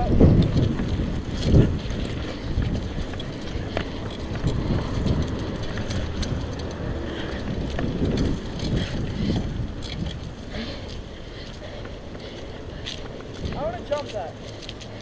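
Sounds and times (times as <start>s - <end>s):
low rumble of bicycle ride: 0.0s - 15.0s
wind buffeting microphone: 0.0s - 15.0s.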